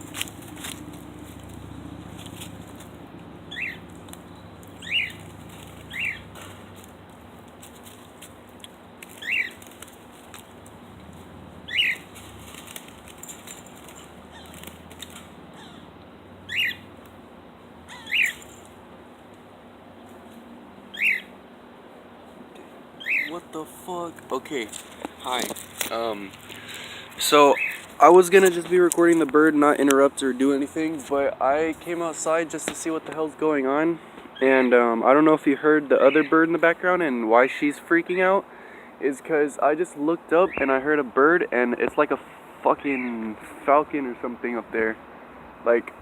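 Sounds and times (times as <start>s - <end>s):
cockatiel chirping loudly: 3.5s - 3.8s, 4.8s - 5.2s, 5.9s - 6.2s, 9.2s - 9.6s, 11.7s - 12.0s, 16.5s - 16.8s, 17.9s - 18.4s, 20.9s - 21.3s, 23.0s - 23.4s, 27.6s - 27.8s.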